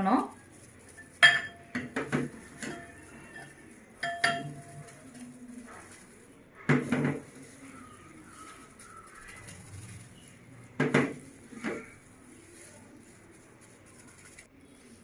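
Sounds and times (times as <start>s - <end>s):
spoon scraping a bowl: 0.5s - 12.8s
spoon ringing clinks: 1.0s - 1.9s, 2.6s - 4.9s.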